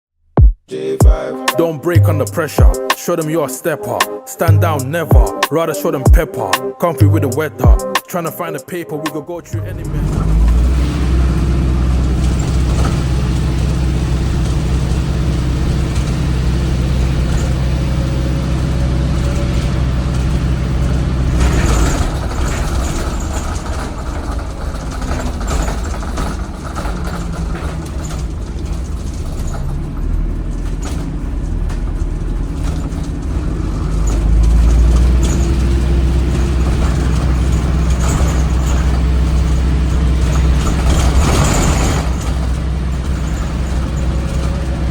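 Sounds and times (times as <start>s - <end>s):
diesel bus engine at full throttle: 9.4s - 44.9s.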